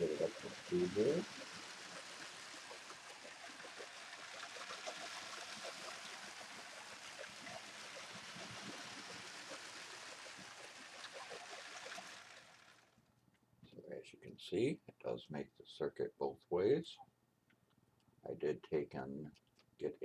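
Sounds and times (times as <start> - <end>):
toy train motor whirring: 0.0 - 13.0.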